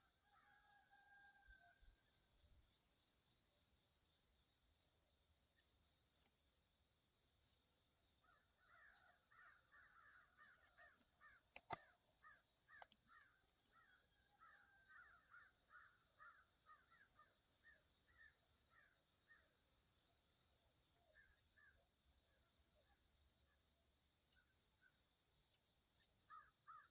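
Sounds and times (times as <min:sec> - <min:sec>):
faint bird chirps: 0:07.4 - 0:26.9.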